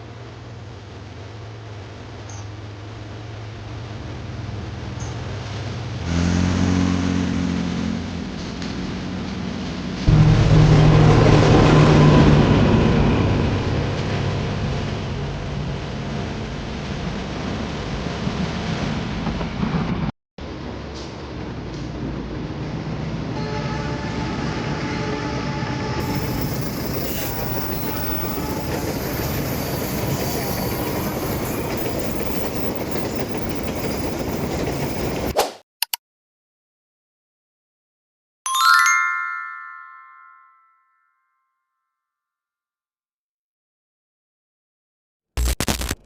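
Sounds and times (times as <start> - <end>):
diesel train engine drone: 0.0 - 35.4
train running noise: 8.0 - 35.4.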